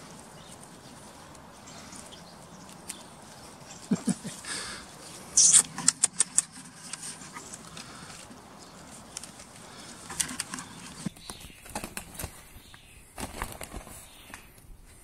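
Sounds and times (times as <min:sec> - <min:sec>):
birds calling: 0:00.0 - 0:14.6
light clicks and rustles: 0:05.6 - 0:11.1.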